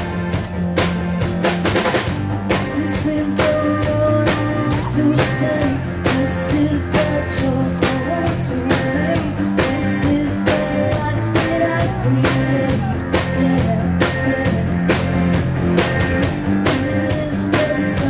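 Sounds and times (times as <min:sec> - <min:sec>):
drum kit beat: 0:00.0 - 0:18.0
live rock band playing: 0:00.0 - 0:18.0.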